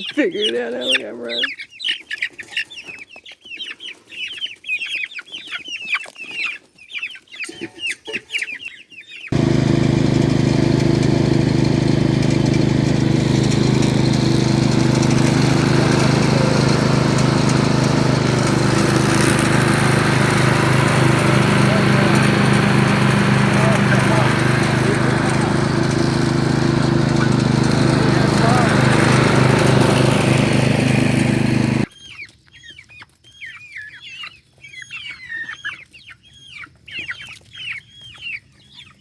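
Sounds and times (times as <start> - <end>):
chickens clucking and cheeping: 0.0 - 19.3
small engine running: 9.3 - 31.9.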